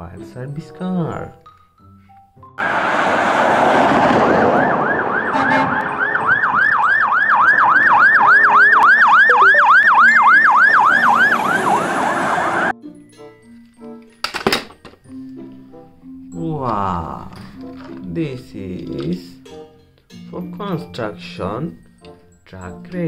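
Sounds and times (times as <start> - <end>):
noisy rush: 2.6 - 12.7
fire engine siren yelping: 2.6 - 12.8.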